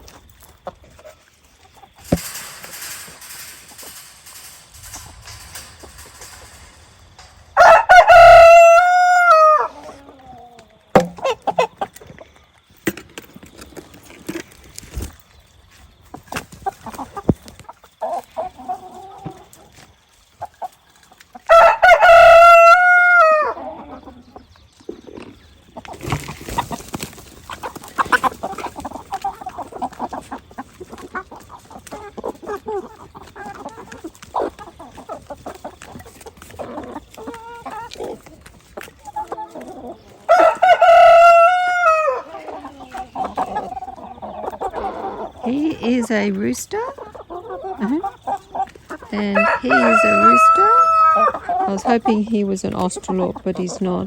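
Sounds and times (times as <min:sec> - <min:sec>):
chickens clucking: 0:00.0 - 0:54.0
rooster crowing: 0:07.6 - 0:10.0, 0:21.5 - 0:23.6, 0:40.3 - 0:42.3, 0:49.4 - 0:51.4.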